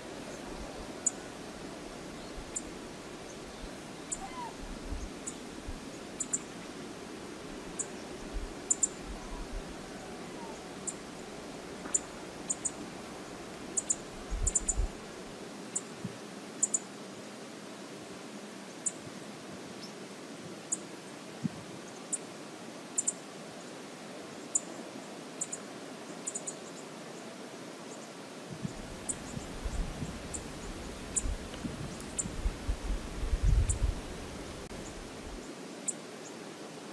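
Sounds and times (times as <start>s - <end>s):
wind buffeting microphone: 28.6s - 35.4s.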